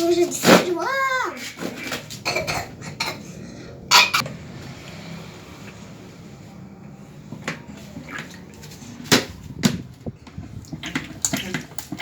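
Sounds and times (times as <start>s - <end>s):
water splashing: 10.5s - 12.0s.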